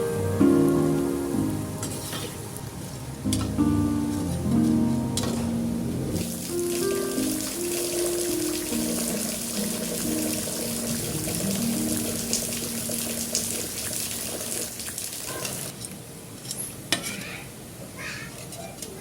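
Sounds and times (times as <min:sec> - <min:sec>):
water running from a tap: 0:06.2 - 0:15.8.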